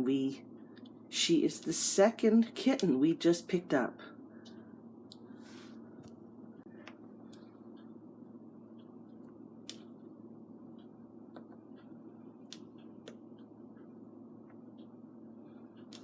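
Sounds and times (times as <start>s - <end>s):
low steady hum: 0.0s - 16.0s
faint sharp clicks: 15.8s - 16.0s.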